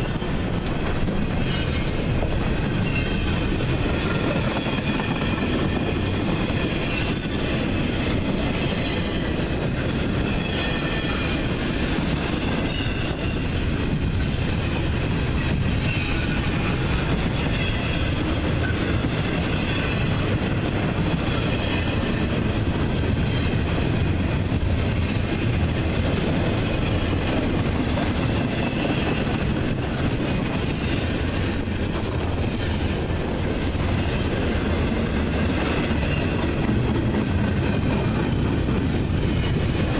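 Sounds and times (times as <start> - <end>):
wheels squealing against rail: 0.0 - 20.3, 21.0 - 23.8, 28.2 - 33.0, 35.4 - 38.4
train wheels rumbling on track: 0.0 - 39.9.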